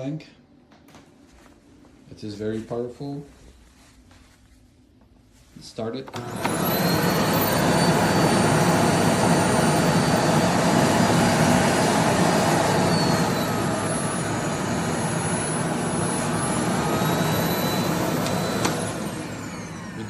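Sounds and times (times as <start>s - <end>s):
vacuum cleaner running: 6.1s - 20.0s.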